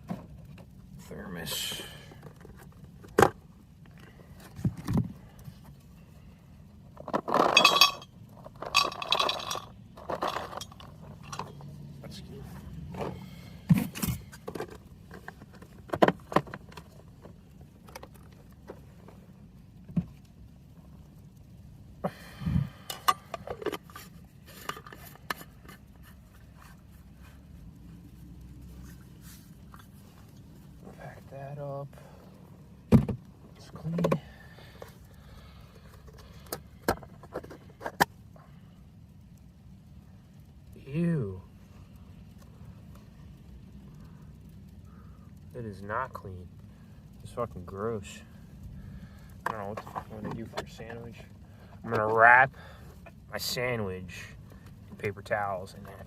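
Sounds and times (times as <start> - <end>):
faint steady hum: 0.0 - 56.0
bright rattling and scraping: 6.9 - 19.2, 22.8 - 27.5, 49.4 - 52.4.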